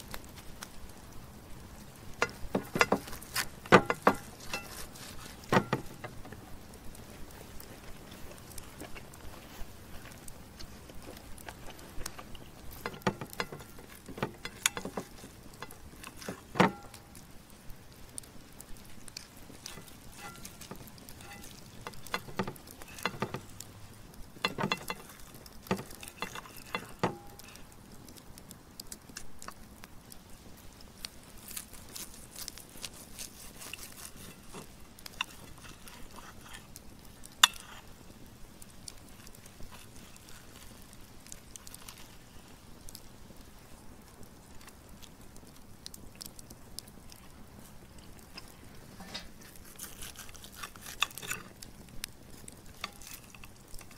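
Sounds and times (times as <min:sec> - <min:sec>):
cutlery clinking on plate: 0:24.4 - 0:25.1.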